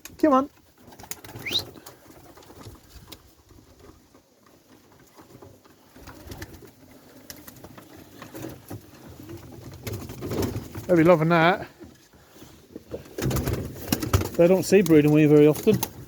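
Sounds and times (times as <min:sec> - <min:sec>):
pigeons cooing faintly: 0:00.5 - 0:11.1.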